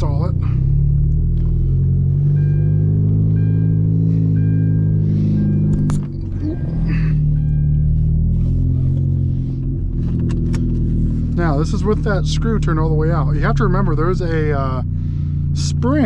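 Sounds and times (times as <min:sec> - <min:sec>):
car engine at low revs: 0:00.0 - 0:16.0
two-tone warning chime: 0:02.3 - 0:08.4.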